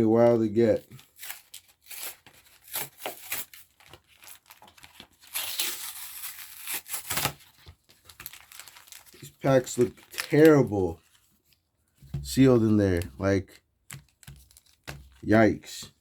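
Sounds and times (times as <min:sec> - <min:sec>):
blister pack tearing and crinkling: 0:00.9 - 0:10.7, 0:14.0 - 0:15.2.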